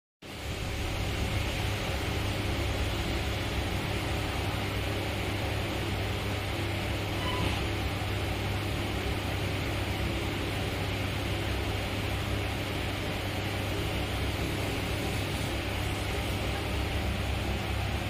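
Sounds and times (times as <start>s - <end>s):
railway running rumble and hiss: 0.3s - 18.0s.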